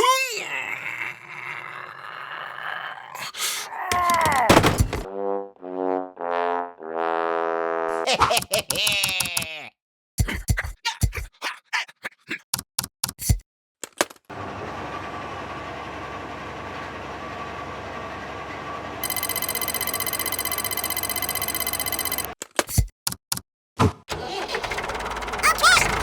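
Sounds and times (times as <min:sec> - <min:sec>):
mechanical motor running: 0:19.0 - 0:22.3.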